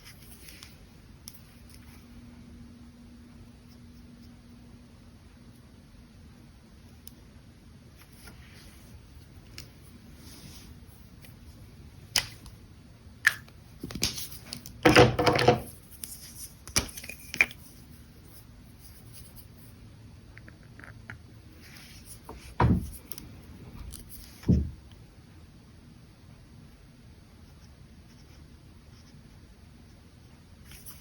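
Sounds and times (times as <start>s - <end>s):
dull knocks: 22.6s - 22.9s
brush pen scratching on paper: 27.4s - 29.4s.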